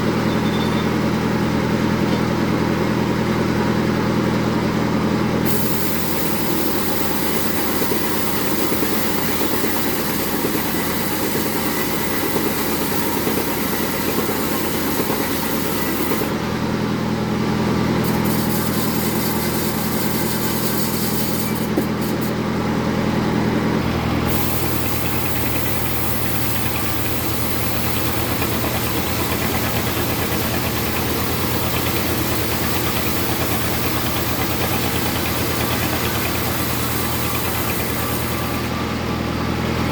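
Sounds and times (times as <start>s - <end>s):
bandsaw running: 5.4s - 16.6s, 17.9s - 22.4s, 23.7s - 39.2s.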